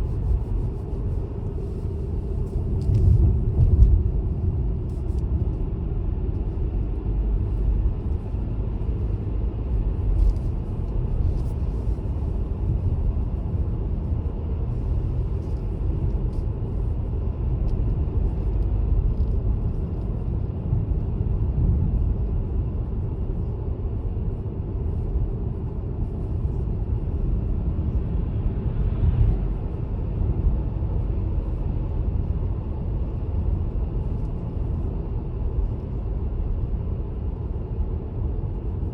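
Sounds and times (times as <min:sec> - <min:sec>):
car engine and tyre noise: 0:00.0 - 0:38.9.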